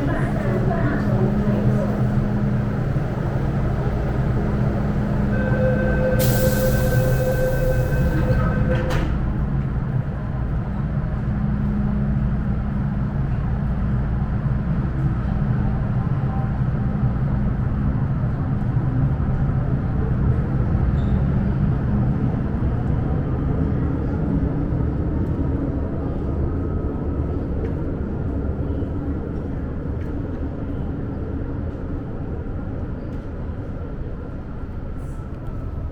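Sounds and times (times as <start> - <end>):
electric train traction motors humming: 0.0 - 12.4
train wheels rumbling: 0.0 - 35.9.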